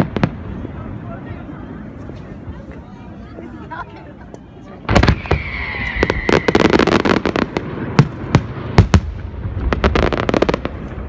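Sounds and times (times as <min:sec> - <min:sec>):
fireworks bangs and crackling: 0:00.0 - 0:02.0, 0:04.8 - 0:11.0
firework whistle: 0:04.9 - 0:07.4.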